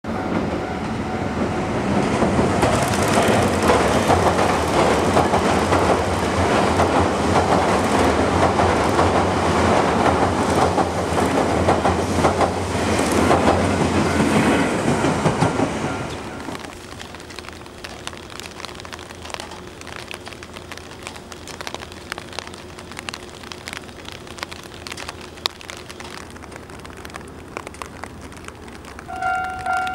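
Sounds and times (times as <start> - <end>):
electric train rumbling past: 0.0 - 16.8, 29.1 - 29.9
wheels clattering over rail joints: 1.9 - 17.1.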